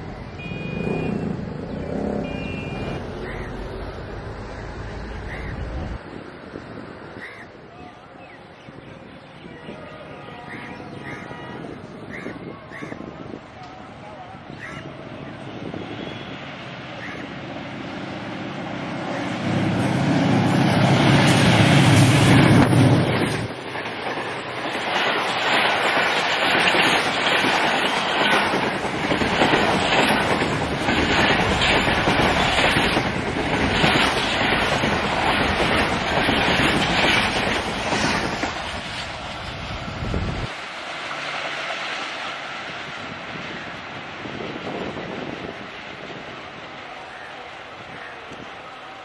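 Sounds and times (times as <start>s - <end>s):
diesel locomotive engine rumble: 0.0s - 49.0s
train wheels clickety-clack: 19.0s - 39.1s.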